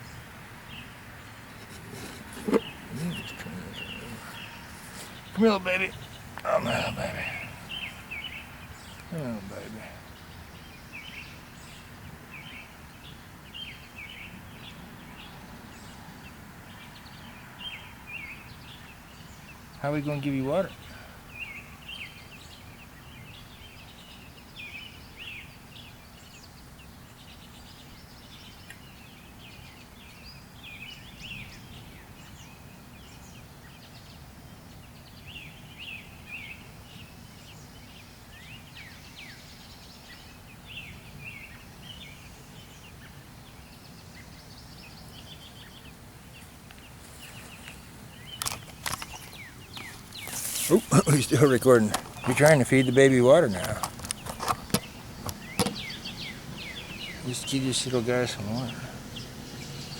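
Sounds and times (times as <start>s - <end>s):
baby bird chirping: 1.8s - 8.4s, 48.3s - 57.6s.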